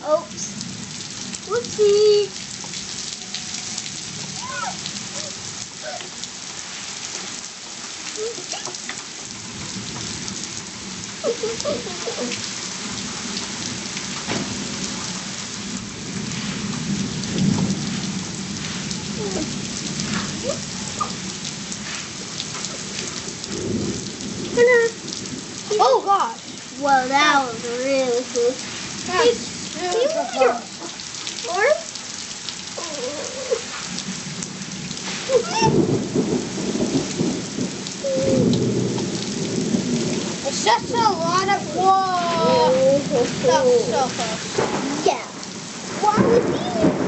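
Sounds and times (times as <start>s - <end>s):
steady rain falling: 0.0s - 47.0s
low rumble of thunder: 9.2s - 30.8s, 32.7s - 47.0s.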